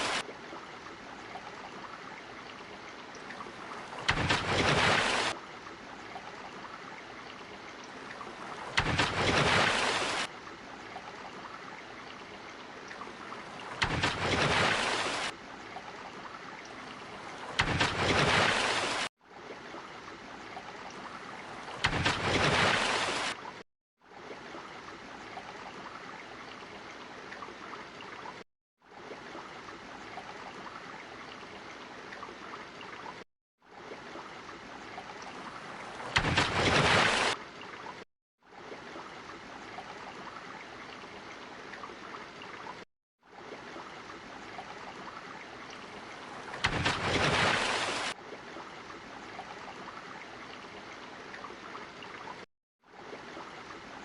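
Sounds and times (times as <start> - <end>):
ocean water rushing: 0.0 - 0.2, 2.6 - 5.4, 7.6 - 10.3, 12.6 - 15.4, 16.6 - 19.1, 21.0 - 23.6, 35.2 - 37.4, 44.9 - 48.2.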